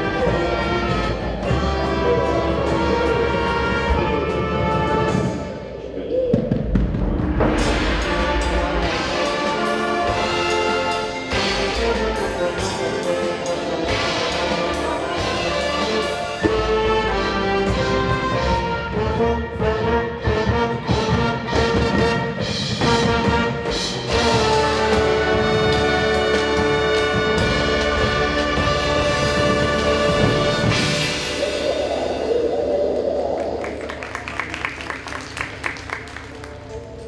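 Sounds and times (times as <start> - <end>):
wind ensemble playing: 0.0 - 5.9, 7.5 - 32.3
drum hits: 6.4 - 15.8.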